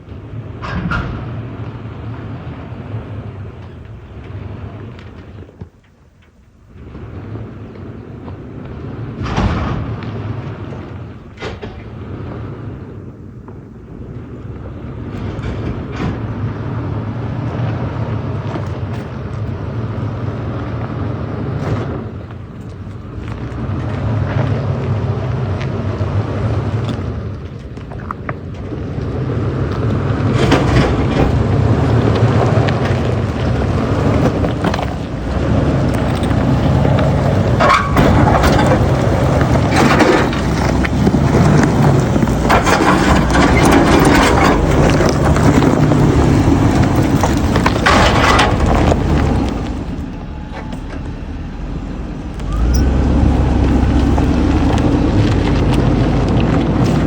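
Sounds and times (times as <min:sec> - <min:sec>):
tyres on rough ground: 0:00.0 - 0:57.0
car engine running: 0:13.9 - 0:57.0
sharp cracks or scrapes: 0:30.3 - 0:50.0.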